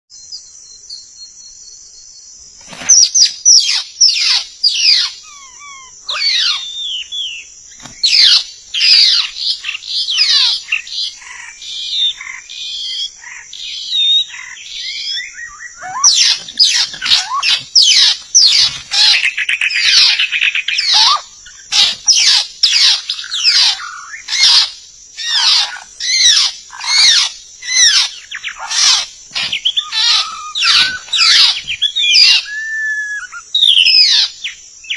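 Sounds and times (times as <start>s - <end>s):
bird singing whistles: 3.5s - 10.8s, 13.7s - 18.5s, 29.6s - 34.9s.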